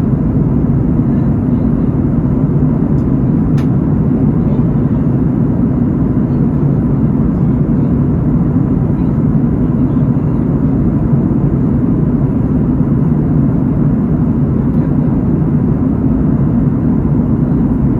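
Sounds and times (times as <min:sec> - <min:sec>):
aircraft cabin drone: 0:00.0 - 0:17.9.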